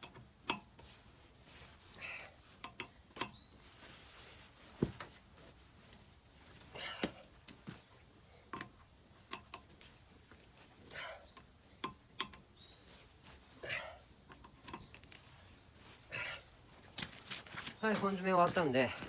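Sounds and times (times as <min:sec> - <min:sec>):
straining breaths: 0:01.0 - 0:03.1, 0:06.6 - 0:09.1, 0:09.7 - 0:17.7.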